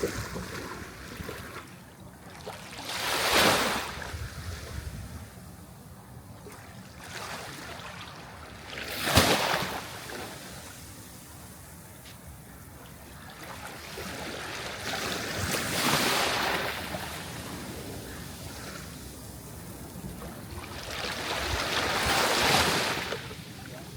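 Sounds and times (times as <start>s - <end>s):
waves breaking on shore: 0.0s - 5.4s, 6.4s - 11.8s, 12.6s - 23.9s.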